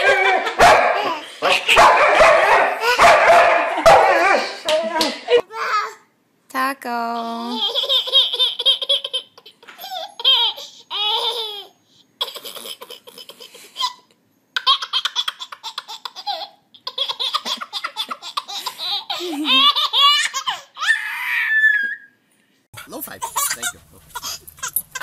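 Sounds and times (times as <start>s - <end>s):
baby giggling: 0.0s - 1.8s, 7.4s - 20.9s, 23.1s - 25.0s.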